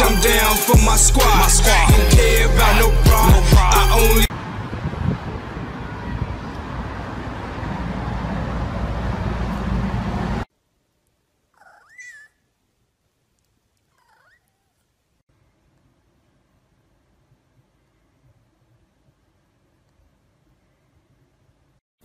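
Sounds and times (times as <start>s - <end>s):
loud music with heavy bass: 0.0s - 4.3s
cat meowing: 14.0s - 14.8s.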